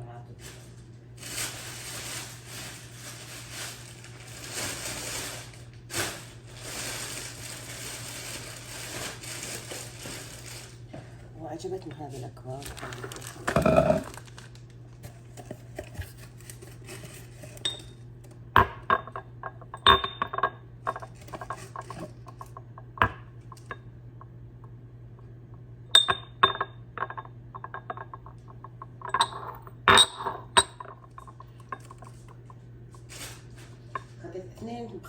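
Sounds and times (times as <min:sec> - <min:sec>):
cups clinking on a hard surface: 0:18.6 - 0:22.0, 0:26.0 - 0:32.2.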